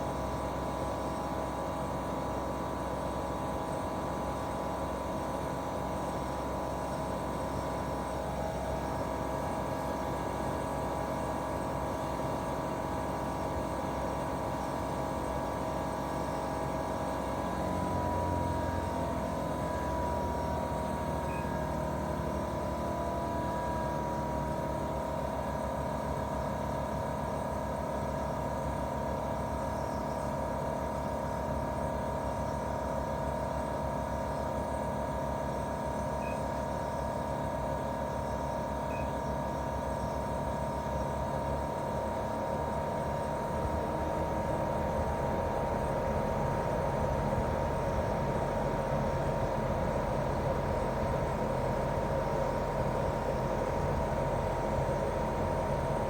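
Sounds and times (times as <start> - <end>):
air conditioner compressor humming: 0.0 - 56.0.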